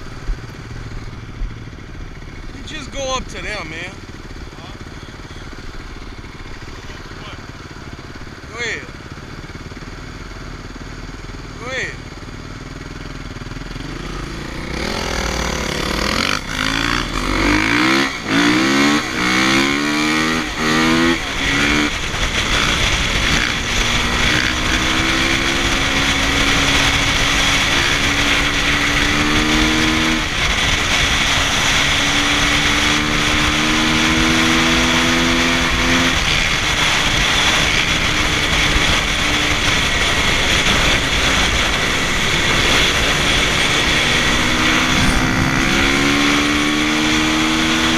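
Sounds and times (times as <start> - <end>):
motocross bike engine revving: 13.4 - 47.9.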